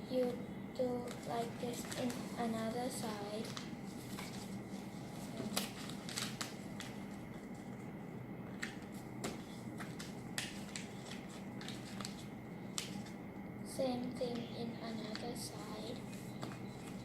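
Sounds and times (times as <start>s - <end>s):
low steady hum: 0.0s - 17.0s
paper crackling as folded: 1.0s - 7.8s, 8.6s - 13.2s.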